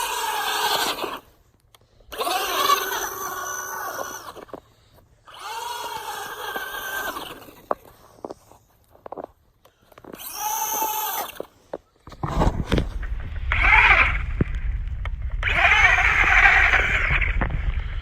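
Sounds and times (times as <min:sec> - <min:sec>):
electric motor whining: 0:00.0 - 0:01.3, 0:02.1 - 0:04.6, 0:12.1 - 0:18.0
low rumble: 0:12.1 - 0:18.0.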